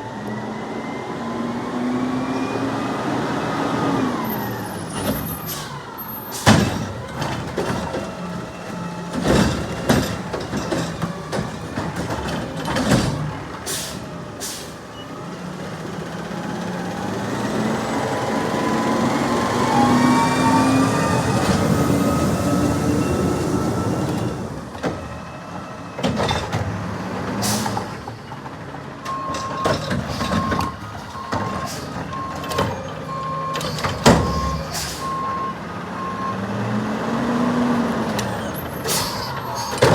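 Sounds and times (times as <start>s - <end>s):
diesel engine revving: 0.2s - 29.2s, 30.0s - 39.9s
metal clanks and knocks: 6.4s - 13.4s
reversing alarm beeping: 29.1s - 36.4s.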